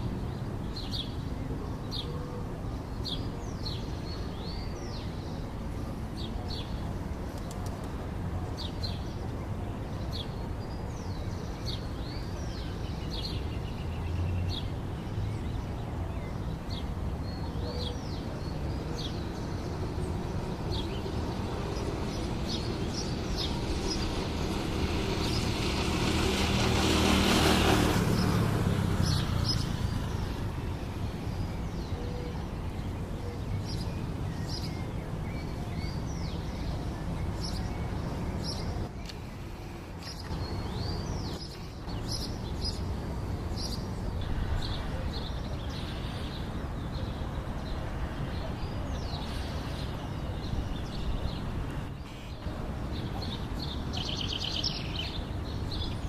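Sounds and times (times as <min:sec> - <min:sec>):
small birds chirping: 0:08.6 - 0:56.0
vehicle passing: 0:19.9 - 0:31.4.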